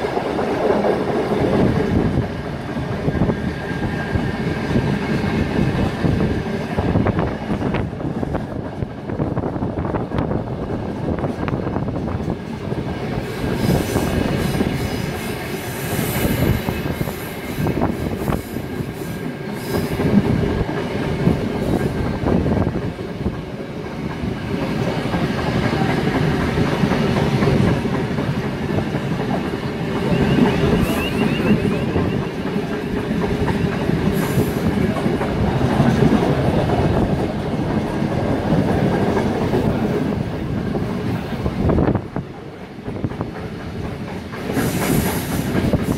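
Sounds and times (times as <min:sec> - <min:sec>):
clickety-clack over rail joints: 0:00.0 - 0:45.9
train wheels rumbling on rails: 0:00.0 - 0:45.9
high wheel squeal: 0:30.0 - 0:32.7.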